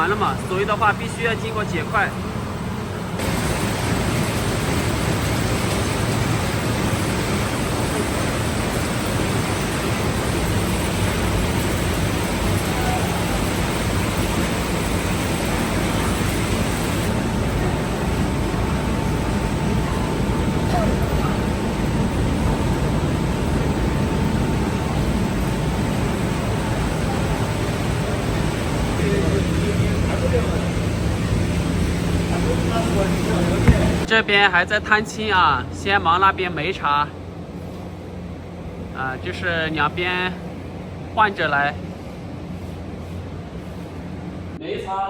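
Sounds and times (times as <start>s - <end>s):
faint steady whine: 0.0s - 44.8s
low machine hum: 0.0s - 45.0s
machinery rushing noise: 3.1s - 37.2s.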